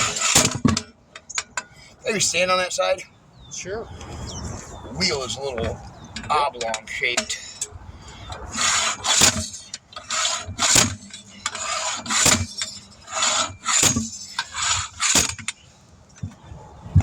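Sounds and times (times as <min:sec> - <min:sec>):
hand tool scraping a tire: 0:00.0 - 0:00.8, 0:08.5 - 0:15.6.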